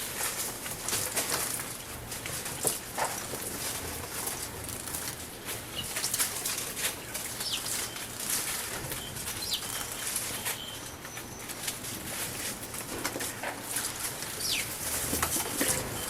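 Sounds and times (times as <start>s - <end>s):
bird chirps: 7.4s - 8.1s, 9.0s - 11.6s, 14.4s - 14.7s.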